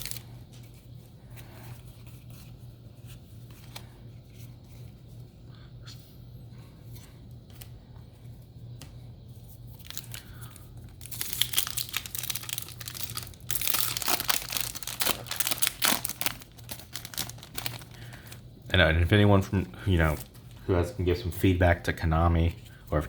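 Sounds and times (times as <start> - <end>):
foil wrapper crinkling and tearing: 0.0 - 0.3, 9.7 - 18.4, 19.9 - 20.6.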